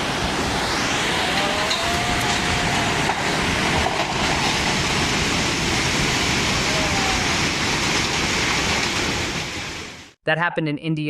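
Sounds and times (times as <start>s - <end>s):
floodwater roaring: 0.0s - 10.2s.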